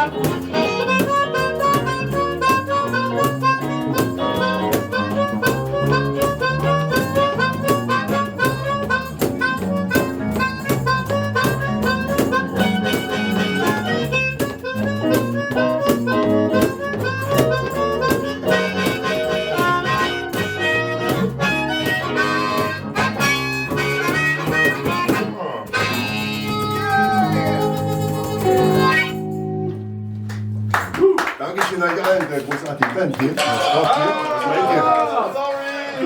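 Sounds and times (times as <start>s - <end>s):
blues harmonica: 0.0s - 30.3s
bass line: 0.0s - 31.0s.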